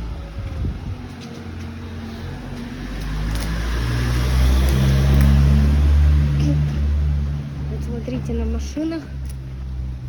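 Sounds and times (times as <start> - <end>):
wind buffeting microphone: 0.0 - 1.6.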